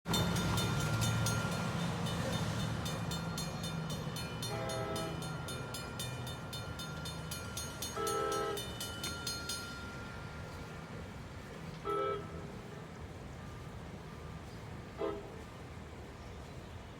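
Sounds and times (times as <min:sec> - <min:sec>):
diesel engine hum: 0:00.1 - 0:07.4
train horn blasts: 0:04.4 - 0:05.5, 0:07.9 - 0:08.8, 0:11.8 - 0:12.6, 0:14.9 - 0:15.6.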